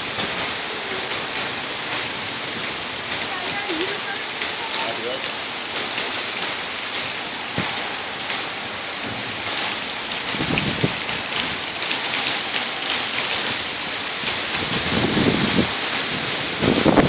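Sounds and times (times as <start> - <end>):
heavy rain falling: 0.0 - 17.0
raindrops ticking on surfaces: 0.0 - 17.0
low thunder rumble: 9.0 - 12.2, 12.9 - 17.0.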